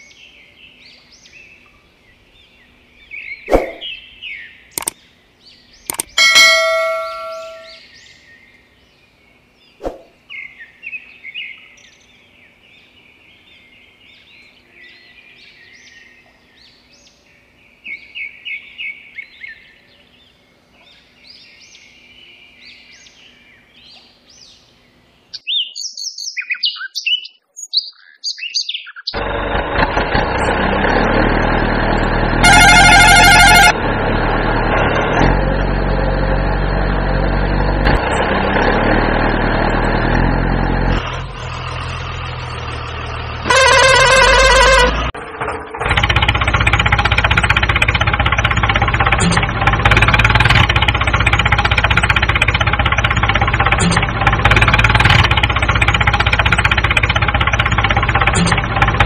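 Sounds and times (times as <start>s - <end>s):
birds chirping and calling: 0.0s - 29.4s
truck engine: 4.8s - 5.0s, 5.9s - 7.8s, 29.2s - 59.0s
horn blast: 6.2s - 7.8s, 32.3s - 33.8s, 43.4s - 45.2s.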